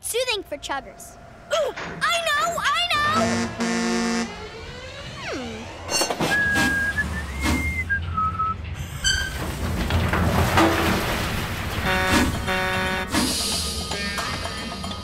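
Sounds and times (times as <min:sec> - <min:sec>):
high pure whistle: 0:06.2 - 0:08.6
short horn toots: 0:11.8 - 0:13.3.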